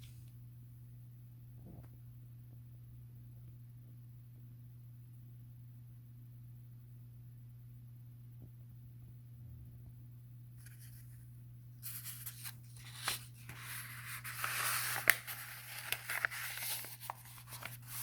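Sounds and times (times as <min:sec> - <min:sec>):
low electrical hum: 0:00.0 - 0:18.0
book pages rustling: 0:10.6 - 0:11.2, 0:11.8 - 0:18.0.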